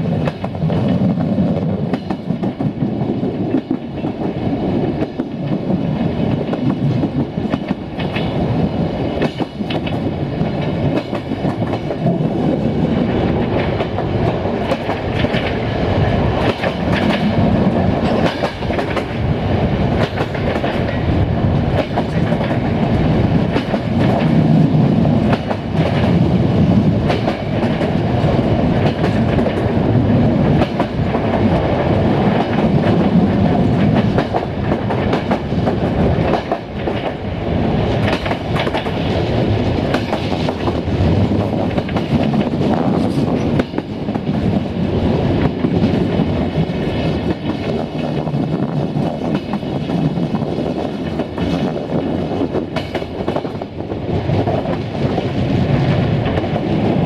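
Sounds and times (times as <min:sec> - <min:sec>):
train coach rumbling: 0:00.0 - 0:57.0
wheels clacking over rail joints: 0:09.1 - 0:19.3, 0:37.8 - 0:44.8, 0:45.4 - 0:57.0.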